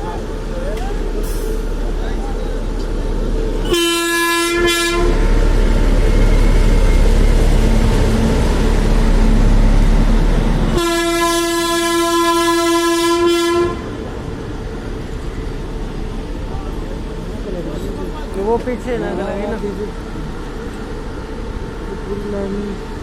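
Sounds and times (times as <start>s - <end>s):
train rumbling past: 0.0s - 23.0s
train horn: 3.6s - 5.3s, 10.7s - 14.0s.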